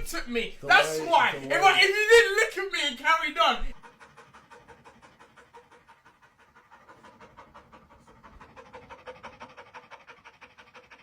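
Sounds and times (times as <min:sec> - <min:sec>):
fast rhythmic panting: 0:03.8 - 0:11.0.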